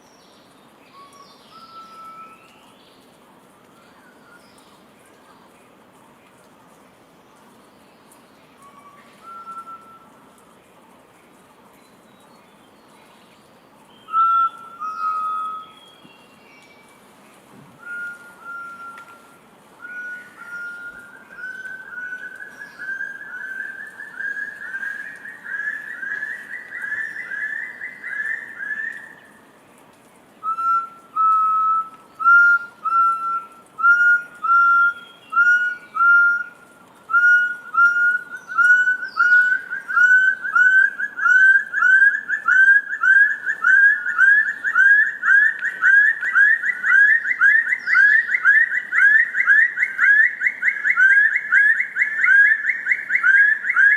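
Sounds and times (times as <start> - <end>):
quail whistled calls: 8.6 - 10.2, 17.8 - 29.1, 30.4 - 53.9.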